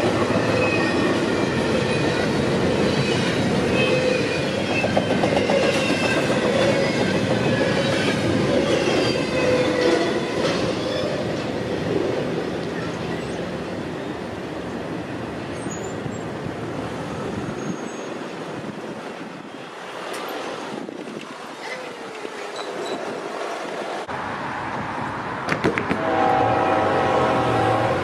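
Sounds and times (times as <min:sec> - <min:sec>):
train rolling past: 0:00.0 - 0:28.0
train horn: 0:25.9 - 0:28.0.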